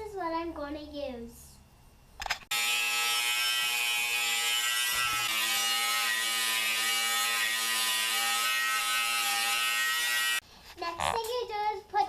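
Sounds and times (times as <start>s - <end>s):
electric grinder on steel: 2.5s - 10.4s.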